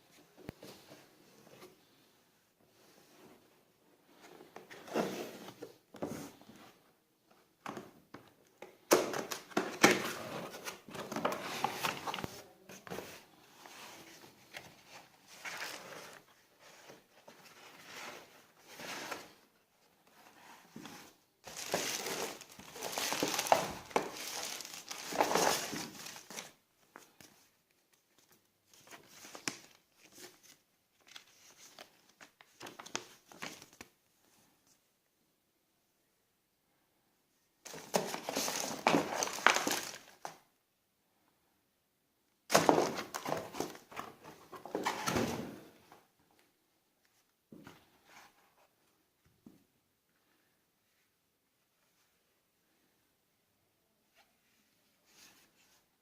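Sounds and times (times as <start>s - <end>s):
crinkling and rustling: 3.0s - 34.8s, 37.6s - 40.5s, 42.5s - 49.6s.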